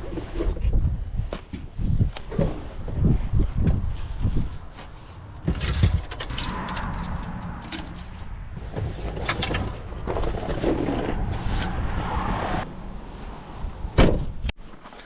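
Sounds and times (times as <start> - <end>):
wind buffeting microphone: 0.4 - 14.5
low rumble: 3.0 - 14.5.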